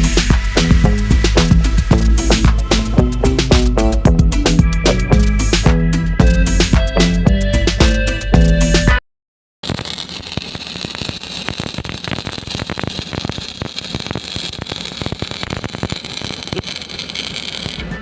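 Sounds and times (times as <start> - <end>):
welding arc crackling: 0.0 - 5.7, 9.6 - 18.0.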